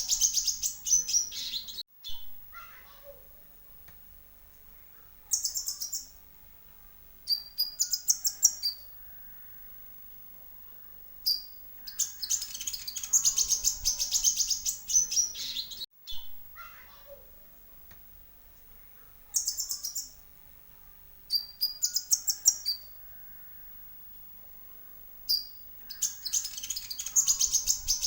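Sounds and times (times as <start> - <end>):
bird chirps and trills: 0.0 - 2.3, 5.2 - 6.2, 7.3 - 9.4, 11.2 - 16.8, 19.3 - 20.2, 21.3 - 23.6, 25.3 - 28.0.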